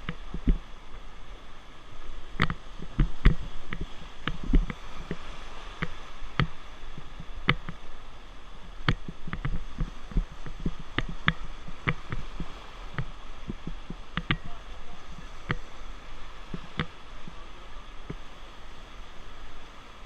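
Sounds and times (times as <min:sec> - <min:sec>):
rushing river water: 0:00.0 - 0:20.0
sharp knocks and clicks: 0:07.4 - 0:07.8, 0:08.8 - 0:14.5.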